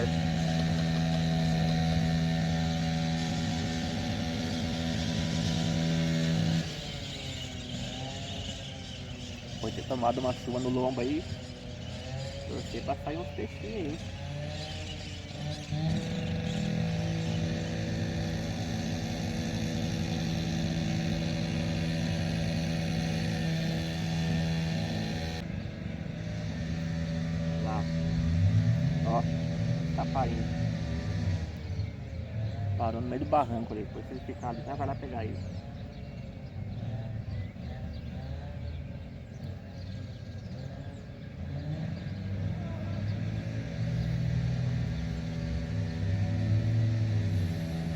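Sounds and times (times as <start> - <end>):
wavering high whine: 0.0 - 32.2
engine humming steadily: 0.0 - 47.9.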